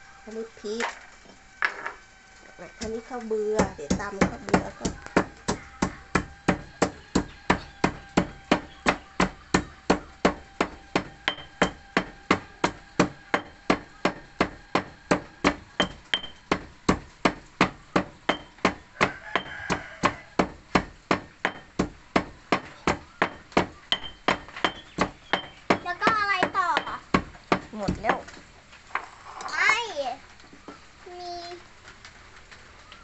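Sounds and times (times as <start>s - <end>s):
pestle pounding rice in mortar: 2.7s - 28.5s.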